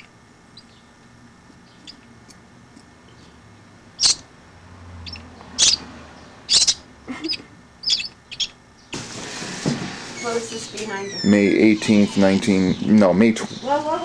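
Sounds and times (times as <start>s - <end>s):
bird sharp calls: 4.0s - 4.3s, 5.0s - 5.9s, 6.5s - 8.9s.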